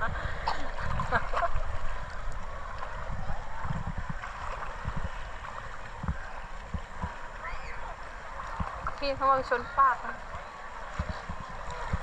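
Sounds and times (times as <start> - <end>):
low rumbling thumps: 0.0 - 7.4
water sloshing and splashing: 0.0 - 12.0.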